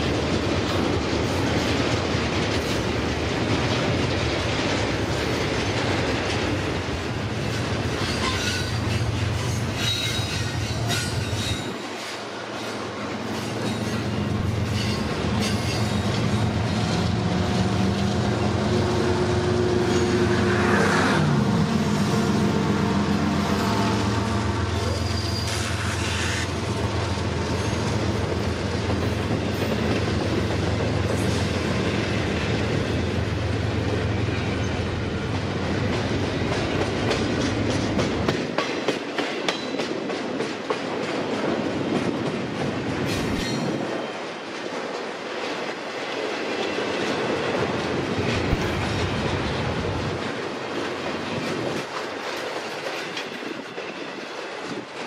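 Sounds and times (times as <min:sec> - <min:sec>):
wheels clicking over rail joints: 0:00.0 - 0:19.0
diesel locomotive engine: 0:00.0 - 0:55.0.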